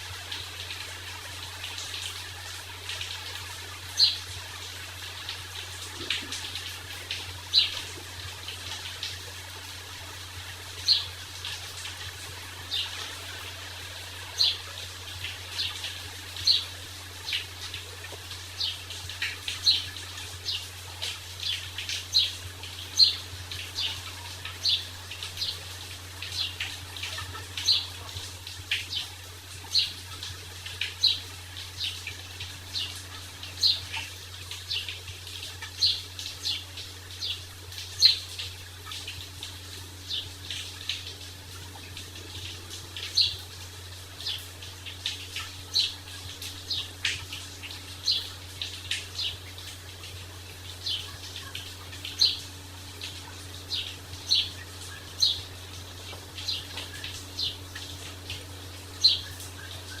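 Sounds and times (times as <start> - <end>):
faint steady hiss: 0.0 - 60.0
low steady hum: 0.0 - 60.0
small birds chirping: 3.2 - 4.3, 7.4 - 7.9, 10.8 - 11.1, 12.6 - 32.0, 32.7 - 34.1, 35.6 - 38.5, 42.2 - 43.5, 44.2 - 49.7, 50.8 - 60.0.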